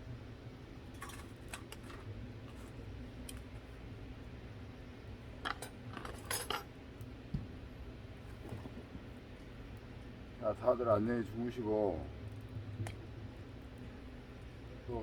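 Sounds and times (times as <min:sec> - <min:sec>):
steady low hum: 0:00.0 - 0:15.0
campfire pops: 0:12.4 - 0:13.8.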